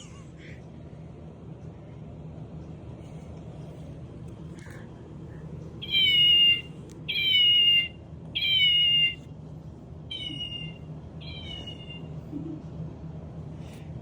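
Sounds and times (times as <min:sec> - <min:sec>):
kitten meowing: 0:05.8 - 0:09.2, 0:10.1 - 0:12.1.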